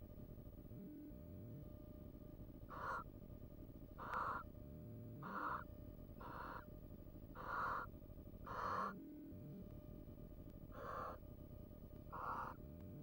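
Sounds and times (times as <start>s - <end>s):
owl hissing calls: 4.0s - 4.4s, 5.2s - 5.6s, 6.2s - 6.6s, 7.4s - 7.9s, 8.5s - 8.9s, 10.7s - 11.2s, 12.1s - 12.6s.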